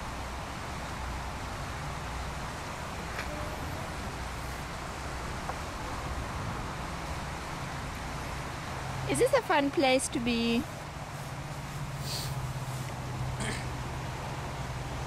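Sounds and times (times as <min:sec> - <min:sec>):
hiss: 0:11.1 - 0:12.9.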